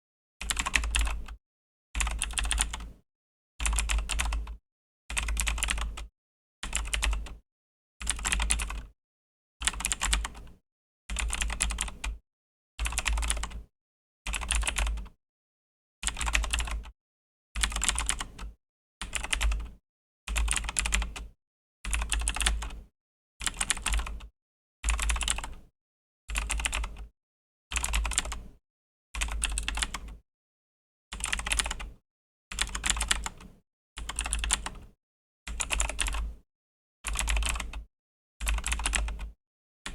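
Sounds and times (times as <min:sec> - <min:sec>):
mechanical keyboard typing: 0:00.5 - 0:01.3, 0:02.0 - 0:02.9, 0:03.6 - 0:04.4, 0:05.1 - 0:07.4, 0:08.0 - 0:08.9, 0:09.6 - 0:10.4, 0:11.1 - 0:12.1, 0:12.8 - 0:13.6, 0:14.4 - 0:15.1, 0:16.0 - 0:16.9, 0:17.6 - 0:18.5, 0:19.1 - 0:19.6, 0:20.4 - 0:21.3, 0:21.9 - 0:22.7, 0:23.4 - 0:24.1, 0:24.9 - 0:25.6, 0:26.4 - 0:27.1, 0:27.8 - 0:28.4, 0:29.2 - 0:30.1, 0:31.2 - 0:31.9, 0:32.6 - 0:33.4, 0:34.0 - 0:34.9, 0:35.5 - 0:36.2, 0:37.1 - 0:37.8, 0:38.4 - 0:39.3.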